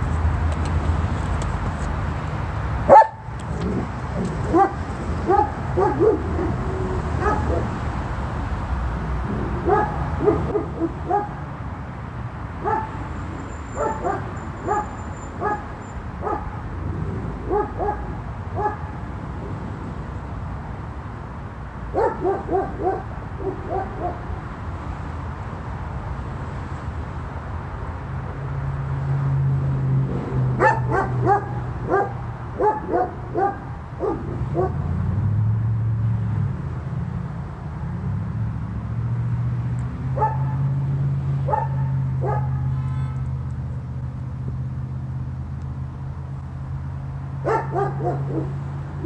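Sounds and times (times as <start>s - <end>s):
dog barking: 2.9s - 7.8s, 9.5s - 11.4s, 12.6s - 13.0s, 13.7s - 16.6s, 17.4s - 19.0s, 21.9s - 24.4s, 30.6s - 34.9s, 40.2s - 40.6s, 41.5s - 42.8s, 47.4s - 48.6s.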